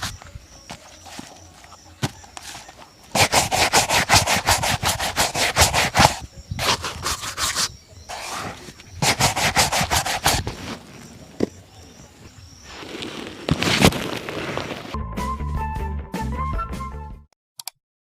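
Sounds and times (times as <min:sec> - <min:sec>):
brush buffing leather shoe: 0:00.7 - 0:11.0.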